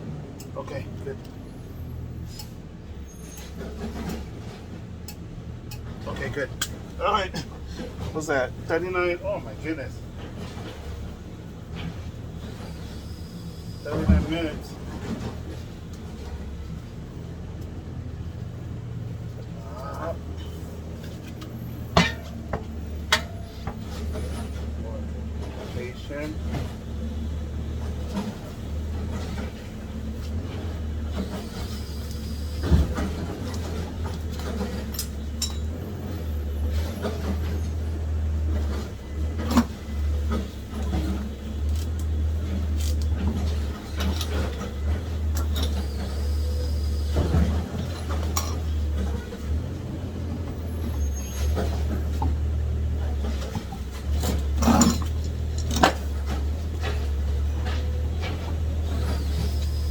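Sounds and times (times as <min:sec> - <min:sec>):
hand tools clicking and knocking: 0:21.2 - 0:24.1, 0:33.4 - 0:35.7.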